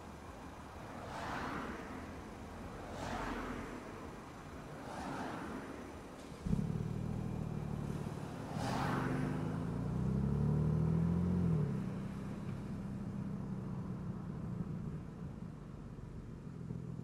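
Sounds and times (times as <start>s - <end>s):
car engine accelerating: 6.2s - 17.0s
brief whoosh: 6.4s - 9.7s.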